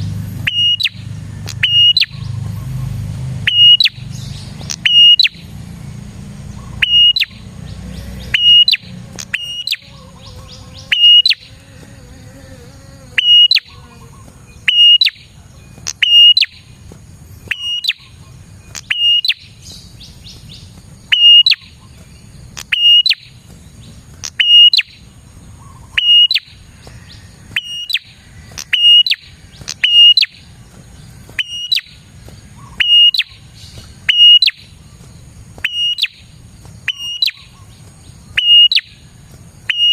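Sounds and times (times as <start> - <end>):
bird calling sharp high notes: 0.4 - 2.2, 3.5 - 4.1, 4.7 - 5.4, 6.6 - 7.5, 8.2 - 11.6, 13.1 - 16.7, 17.5 - 19.5, 21.1 - 21.9, 22.6 - 23.4, 24.2 - 25.0, 25.7 - 26.6, 27.6 - 30.4, 31.4 - 34.8, 35.6 - 36.3, 36.9 - 37.7, 38.4 - 39.0, 39.7 - 39.9.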